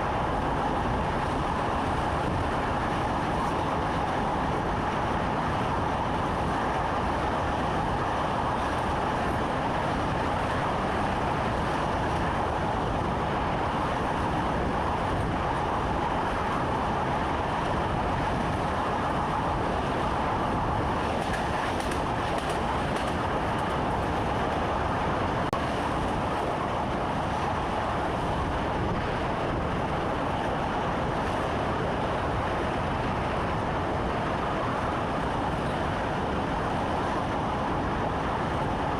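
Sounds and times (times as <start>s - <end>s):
train rumbling on track: 0.0s - 38.9s
faint rail clicks: 20.9s - 24.6s.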